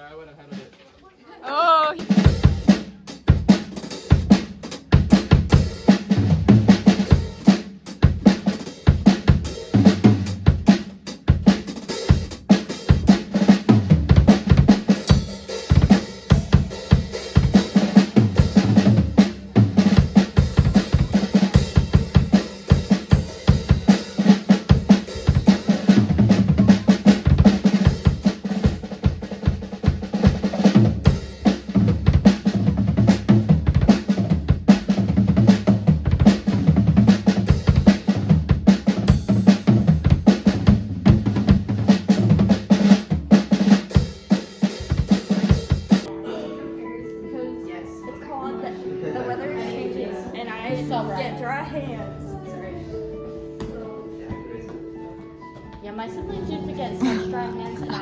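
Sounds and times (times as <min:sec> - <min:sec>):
drum kit playing: 0:01.5 - 0:46.4.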